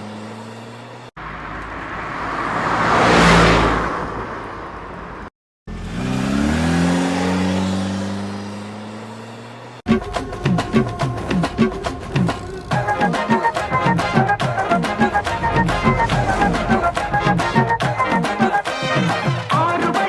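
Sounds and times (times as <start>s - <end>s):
car passing by: 0.0s - 9.8s, 12.1s - 19.3s
engine revving up: 5.7s - 19.1s.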